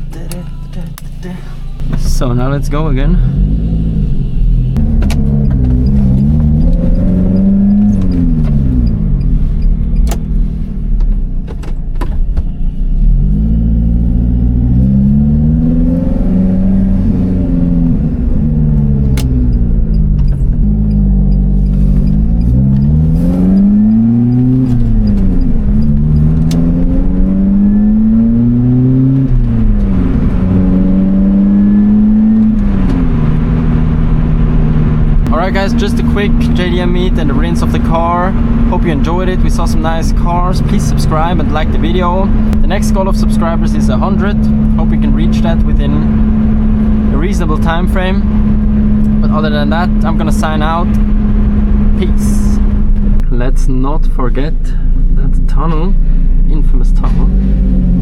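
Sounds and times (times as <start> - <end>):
car engine accelerating and shifting: 0.0 - 58.0
sharp clicks: 18.8 - 27.3.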